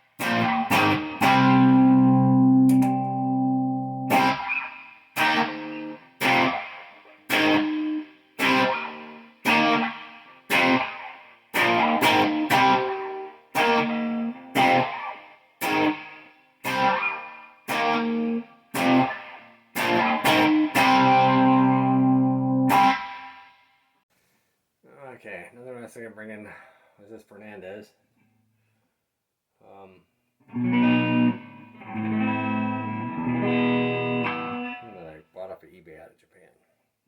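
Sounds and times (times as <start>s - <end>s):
electric guitar chords ringing: 0.2s - 23.3s, 30.5s - 35.0s.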